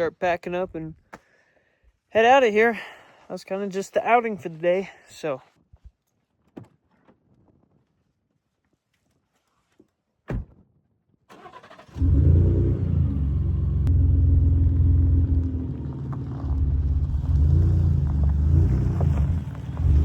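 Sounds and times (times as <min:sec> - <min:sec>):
thump: 0:10.3 - 0:10.7
truck engine cranking and starting: 0:11.3 - 0:20.0.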